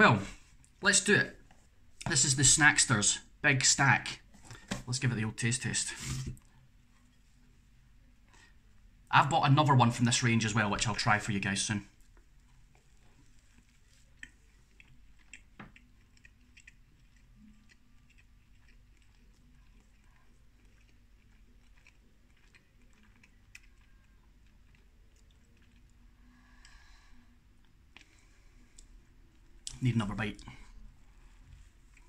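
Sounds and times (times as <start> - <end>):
faint chewing: 6.0 - 9.1, 11.8 - 32.0.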